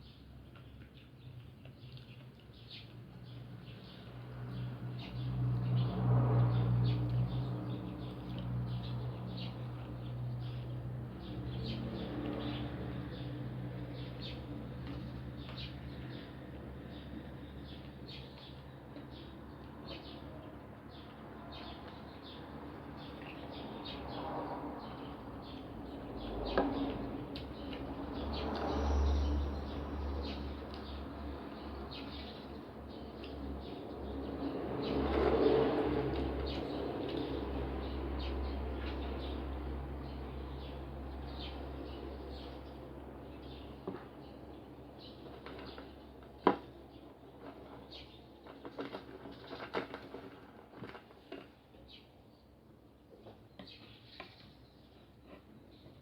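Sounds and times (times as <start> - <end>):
small birds chirping: 0.0 - 5.9, 6.5 - 56.0
chewing crispy fried food: 0.4 - 3.6.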